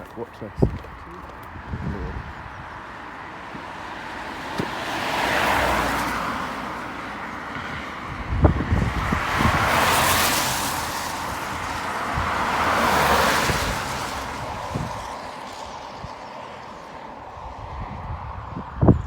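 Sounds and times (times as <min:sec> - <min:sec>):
wind thumps on microphone: 0:00.5 - 0:02.7, 0:07.6 - 0:10.6, 0:11.3 - 0:15.3, 0:17.6 - 0:19.0.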